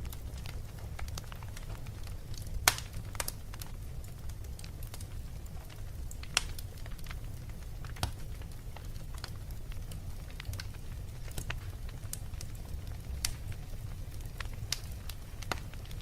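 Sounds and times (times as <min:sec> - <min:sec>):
fire crackling and popping: 0:00.0 - 0:16.0.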